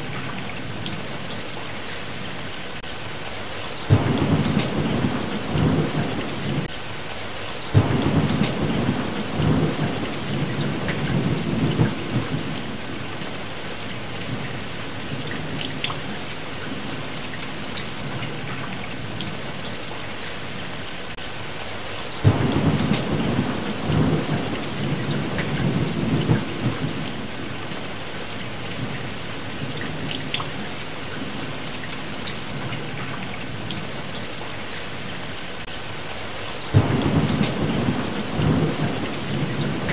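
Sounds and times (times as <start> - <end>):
heavy rain: 0.0 - 39.9
rolling thunder: 3.9 - 6.7, 7.7 - 13.2, 22.2 - 27.6, 36.7 - 39.9.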